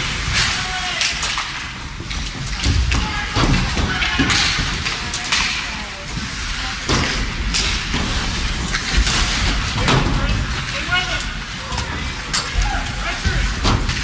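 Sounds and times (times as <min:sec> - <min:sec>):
crowd murmur: 0:00.0 - 0:14.0
low rink rumble: 0:00.0 - 0:14.0
skates and sticks scraping ice: 0:00.0 - 0:14.0.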